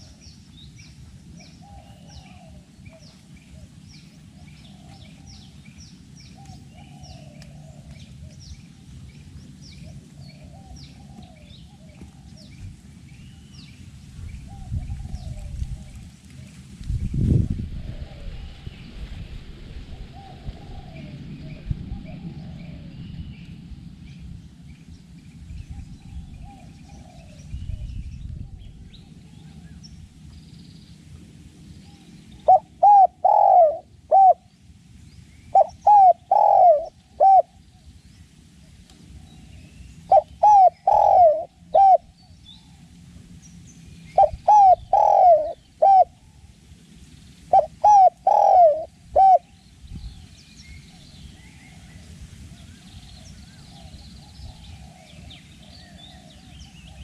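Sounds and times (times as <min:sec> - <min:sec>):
dove cooing: 0:01.4 - 0:05.5, 0:06.4 - 0:08.4, 0:09.8 - 0:12.7, 0:14.5 - 0:16.6, 0:20.0 - 0:23.0, 0:26.1 - 0:27.5, 0:32.4 - 0:34.5, 0:35.5 - 0:37.7, 0:39.2 - 0:42.2, 0:44.2 - 0:46.4, 0:47.5 - 0:49.6.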